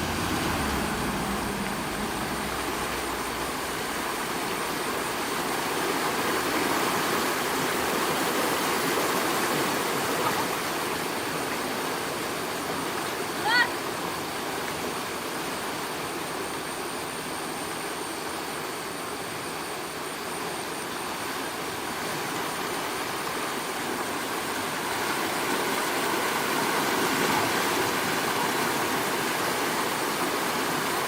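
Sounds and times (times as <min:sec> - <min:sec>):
floodwater rushing: 0:00.0 - 0:16.1.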